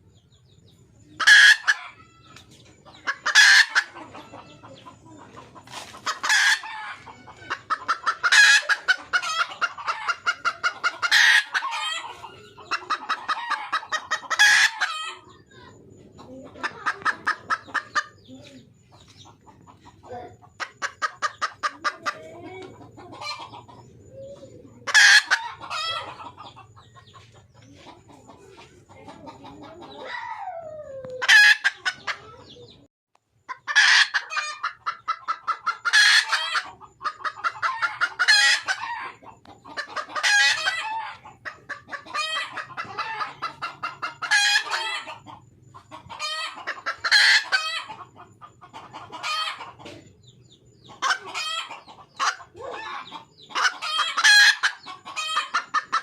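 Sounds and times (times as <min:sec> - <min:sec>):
hen clucking: 0:00.0 - 0:56.0.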